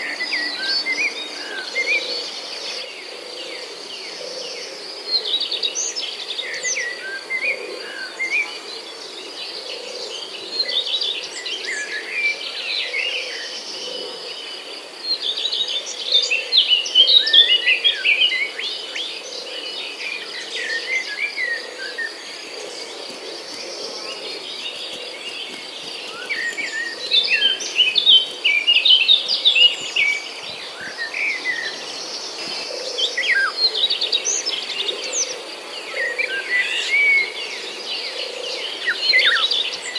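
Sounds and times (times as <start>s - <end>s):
high insect drone: 0.0s - 39.9s
birds chirping and calling: 15.1s - 39.9s.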